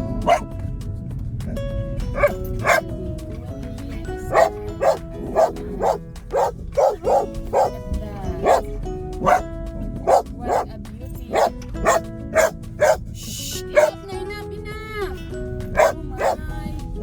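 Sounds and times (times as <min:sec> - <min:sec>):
background music: 0:00.0 - 0:17.0
dog barking: 0:00.2 - 0:00.5, 0:02.1 - 0:02.8, 0:04.3 - 0:07.8, 0:08.4 - 0:10.7, 0:11.3 - 0:13.0, 0:13.7 - 0:14.0, 0:15.7 - 0:16.4.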